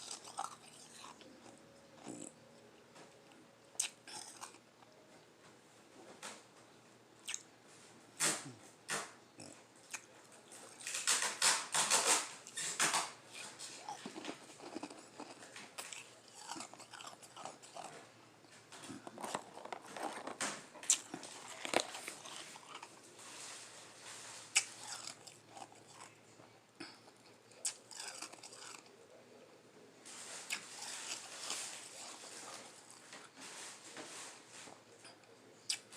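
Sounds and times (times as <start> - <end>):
ice crunching between teeth: 0.0 - 2.3, 3.8 - 4.6, 10.8 - 18.1, 18.8 - 23.6, 24.5 - 26.2, 26.8 - 28.9
chewing ice: 0.0 - 4.9, 12.0 - 18.1, 18.7 - 23.6, 24.5 - 26.2, 26.8 - 29.0, 30.4 - 33.3.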